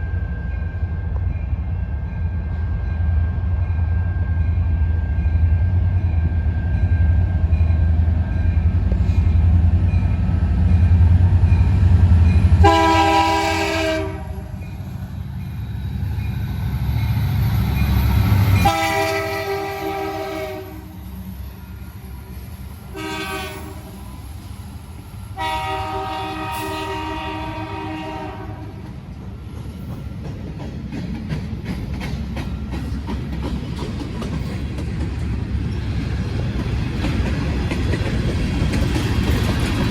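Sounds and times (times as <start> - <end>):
diesel locomotives rumbling: 0.0 - 39.9
multi-tone air horn: 12.6 - 14.5, 18.6 - 21.0, 22.9 - 24.0, 25.4 - 28.7.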